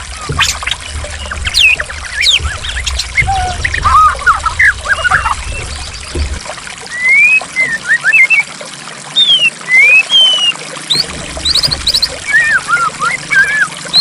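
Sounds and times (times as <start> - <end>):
water flowing and trickling: 0.0 - 14.0
songbird whistling: 6.9 - 8.5, 9.1 - 14.0.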